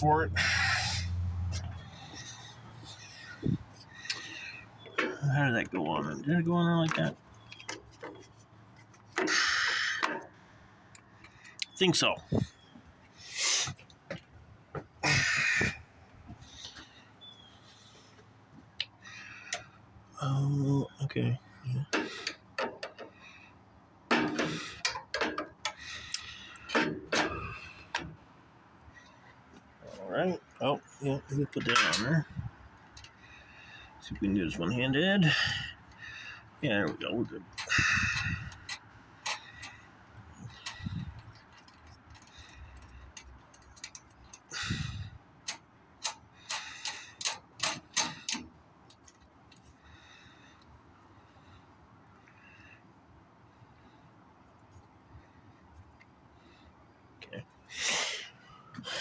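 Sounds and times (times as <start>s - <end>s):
machine parts clicking and knocking: 45.4s - 48.5s.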